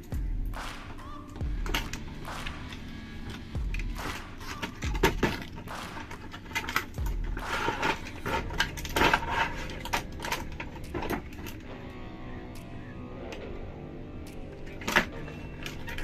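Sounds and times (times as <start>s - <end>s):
plastic toys clicking and clattering: 1.6s - 11.8s, 14.3s - 16.0s.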